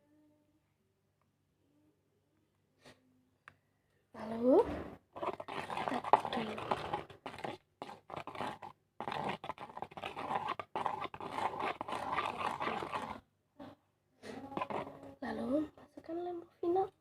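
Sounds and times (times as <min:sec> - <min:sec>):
spoon scraping plastic container: 0:05.1 - 0:13.2, 0:14.3 - 0:15.5.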